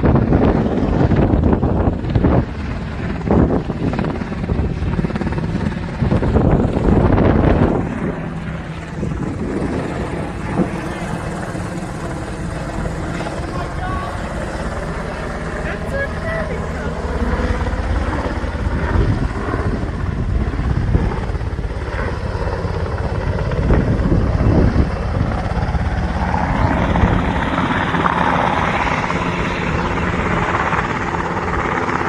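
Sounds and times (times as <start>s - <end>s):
helicopter engines rushing: 0.0s - 32.0s
helicopter rotor beat: 0.0s - 32.0s.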